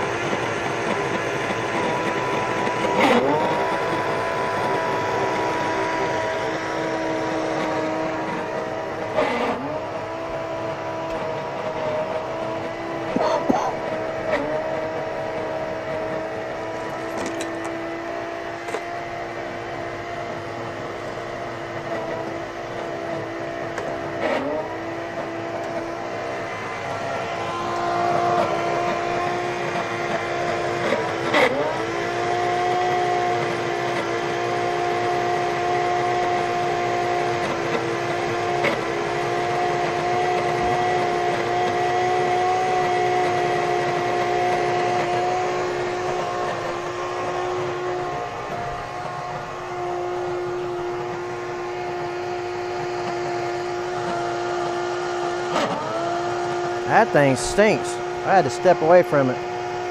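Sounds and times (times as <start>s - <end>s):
vacuum motor whining: 0.0s - 59.9s.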